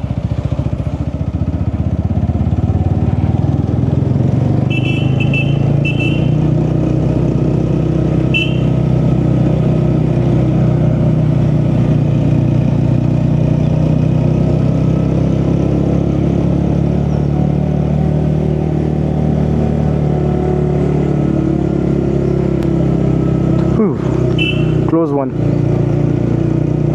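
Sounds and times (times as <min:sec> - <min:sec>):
road noise: 0:00.0 - 0:26.9
vehicle engine cruising: 0:00.0 - 0:26.9
short high-pitched beep: 0:24.4 - 0:24.9.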